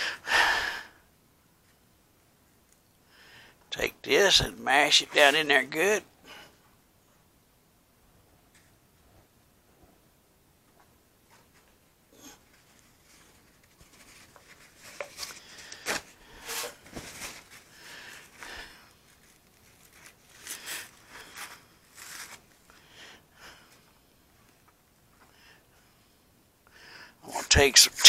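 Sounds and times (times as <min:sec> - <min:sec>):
rustling and scraping: 0:10.7 - 0:22.8.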